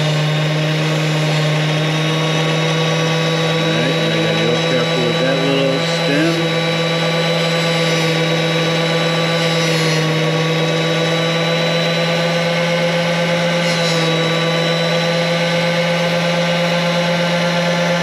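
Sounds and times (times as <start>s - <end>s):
electric grinder motor humming: 0.0s - 18.0s.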